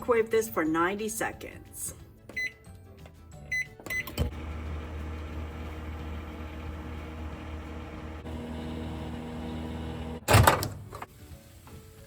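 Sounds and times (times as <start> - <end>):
microwave keypad beeps: 2.3 - 2.6, 3.5 - 4.3
microwave running hum: 4.0 - 10.8.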